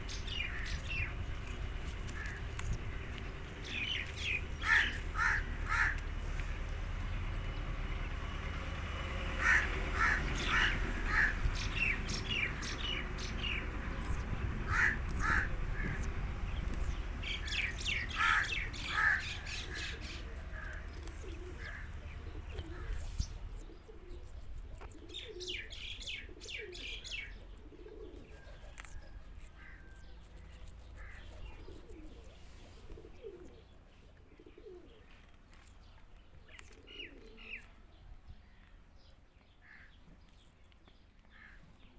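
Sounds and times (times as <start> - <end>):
low steady hum: 0.0 - 26.0
soft low bird calls: 0.0 - 41.9.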